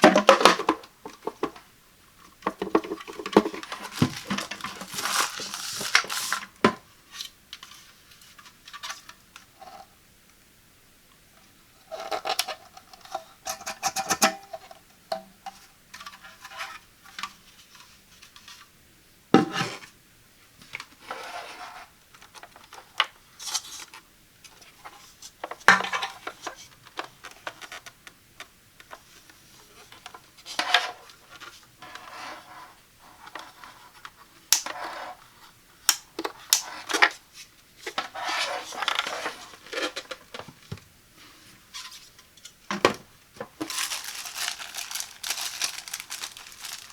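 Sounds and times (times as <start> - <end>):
plastic parts clicking and rubbing: 2.4 - 6.6, 43.4 - 46.9
plastic parts knocking: 2.4 - 6.8, 42.7 - 46.9.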